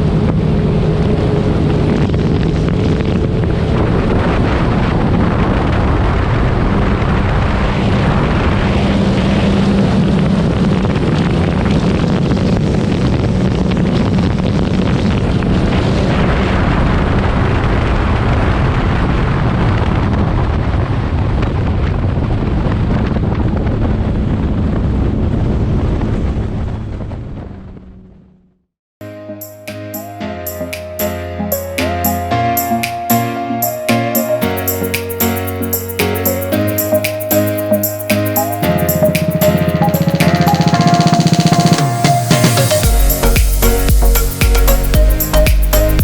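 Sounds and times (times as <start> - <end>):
jet ski engine drone: 0.0 - 4.9
wind noise on microphone: 0.0 - 28.1, 31.6 - 46.0.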